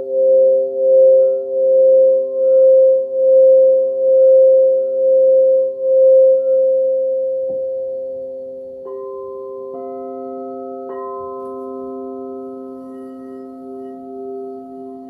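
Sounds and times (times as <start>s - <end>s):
singing bowl ringing: 8.8s - 15.0s.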